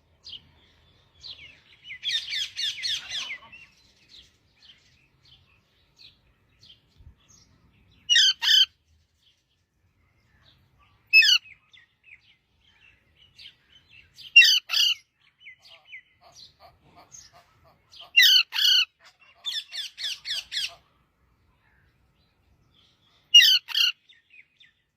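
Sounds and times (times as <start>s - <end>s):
parrot squawking: 2.0s - 3.6s, 8.1s - 8.7s, 11.2s - 11.4s, 14.4s - 15.0s, 18.0s - 20.8s, 23.4s - 24.0s.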